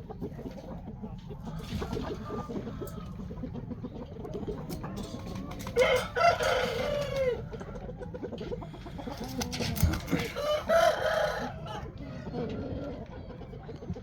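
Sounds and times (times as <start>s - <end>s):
rooster crowing: 5.8s - 7.7s, 10.2s - 12.5s.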